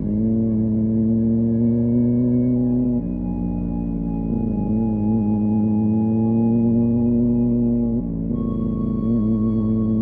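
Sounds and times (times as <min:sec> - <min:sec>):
ambient synth pad chords: 0:00.0 - 0:10.0.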